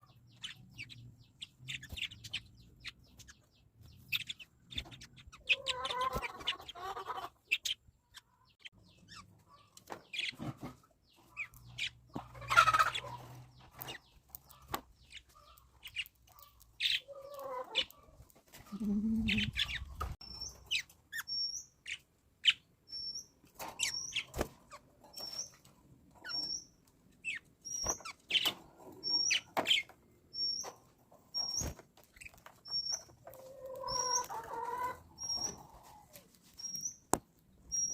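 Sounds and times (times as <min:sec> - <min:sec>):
parrots chirping and squawking: 0:04.2 - 0:10.4, 0:11.2 - 0:18.0, 0:18.7 - 0:22.6, 0:32.2 - 0:35.9.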